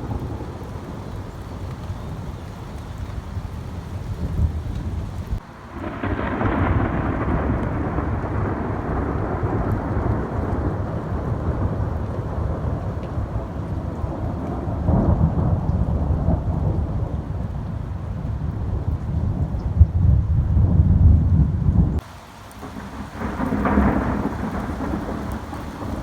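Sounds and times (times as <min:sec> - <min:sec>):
rain falling: 0:00.0 - 0:26.0
thunder rumbling: 0:00.0 - 0:26.0.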